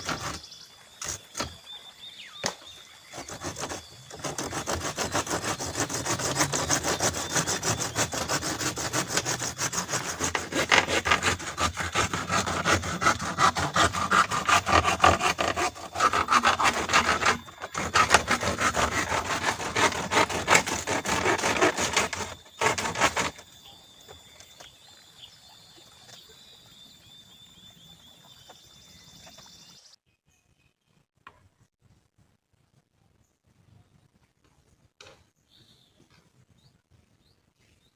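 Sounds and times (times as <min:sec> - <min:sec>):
saw cutting bamboo: 0:00.0 - 0:00.4, 0:02.4 - 0:23.4.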